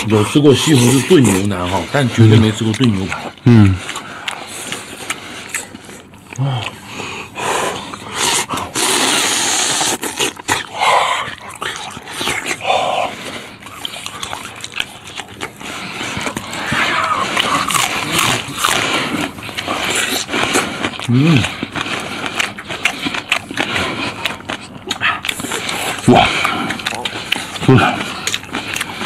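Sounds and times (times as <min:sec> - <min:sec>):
close chewing and gnawing: 0:00.0 - 0:29.0
wet mouth noises: 0:00.0 - 0:29.0
biting into raw onion: 0:07.7 - 0:29.0.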